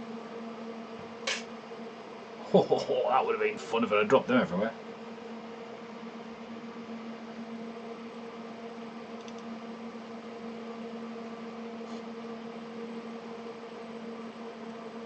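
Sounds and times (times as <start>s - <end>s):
faint light clicks: 9.2s - 9.5s.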